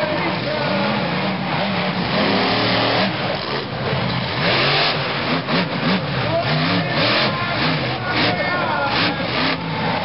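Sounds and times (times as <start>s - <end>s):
monster truck engine revving: 0.0s - 10.0s.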